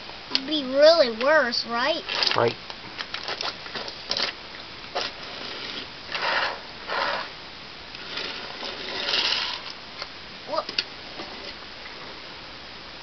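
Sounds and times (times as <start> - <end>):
toys scraping along track: 4.9 - 7.3, 8.0 - 9.8, 11.1 - 11.6
toy track clicks: 8.0 - 9.7.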